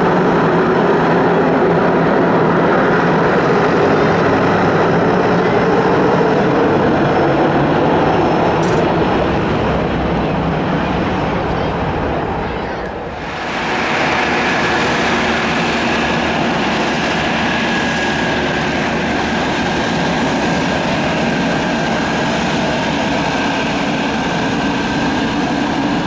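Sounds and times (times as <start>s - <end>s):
high turbine whine: 0.0s - 26.0s
turboprop plane taxiing: 0.0s - 26.0s.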